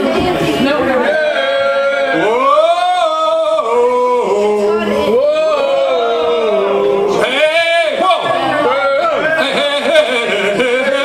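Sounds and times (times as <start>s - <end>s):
man singing long held notes: 1.3s - 8.0s.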